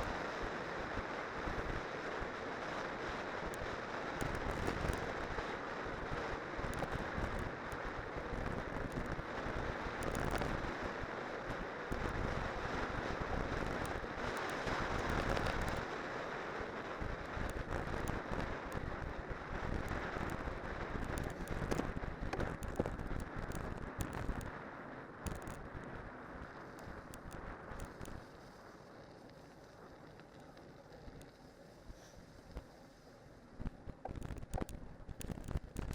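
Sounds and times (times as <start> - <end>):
bicycle tyre rumble: 0.0 - 35.9.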